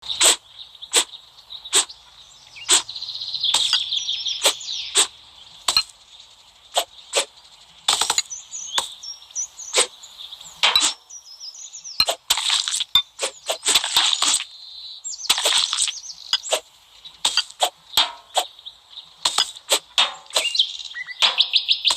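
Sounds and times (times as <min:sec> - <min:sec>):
high chirping: 0:00.0 - 0:21.9
knife chopping: 0:00.2 - 0:01.1, 0:03.6 - 0:03.8, 0:19.3 - 0:20.6.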